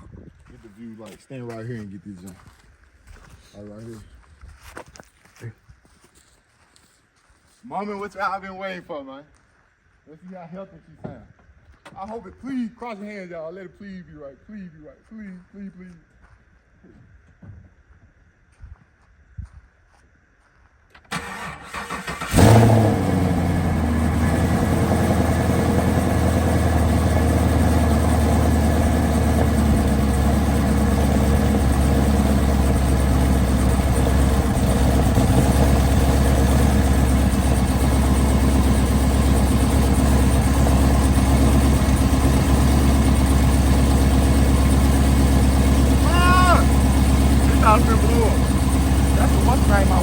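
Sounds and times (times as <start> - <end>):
car engine revving and idling: 21.7 - 50.0.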